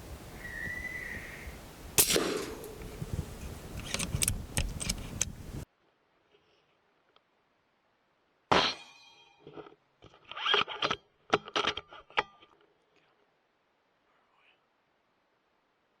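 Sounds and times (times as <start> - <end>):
metallic clang: 2.0 - 3.2.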